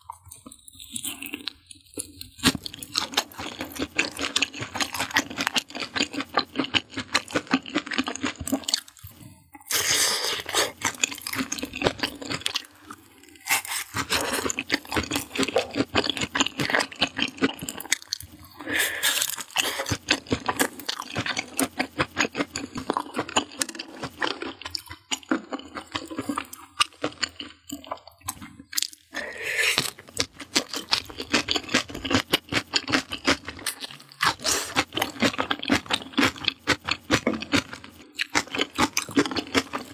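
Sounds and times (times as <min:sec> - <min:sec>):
crunchy chewing: 0:00.0 - 0:39.9
person taking a bite: 0:26.0 - 0:35.8.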